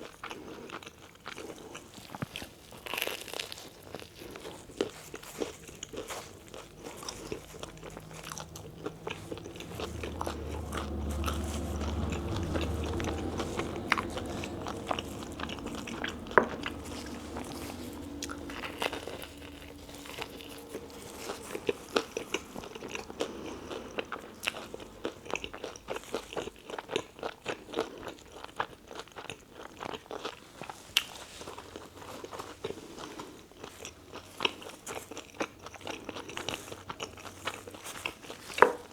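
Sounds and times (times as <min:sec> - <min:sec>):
crunchy chewing: 0:00.0 - 0:38.9
low hum: 0:05.7 - 0:26.6.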